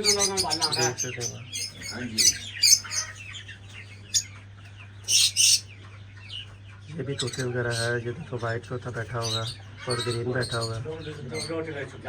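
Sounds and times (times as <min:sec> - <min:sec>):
caged birds chirping: 0:00.0 - 0:12.0.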